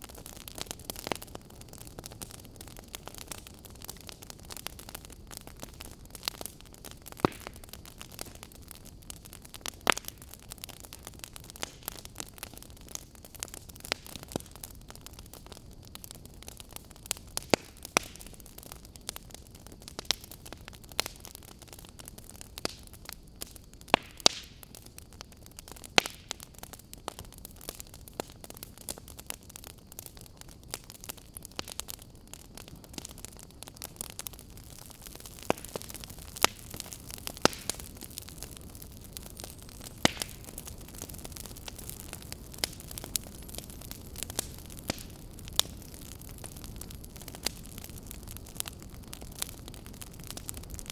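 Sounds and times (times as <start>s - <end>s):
firewood crackling and popping: 0.0s - 50.9s
soft steady hiss: 0.0s - 50.9s.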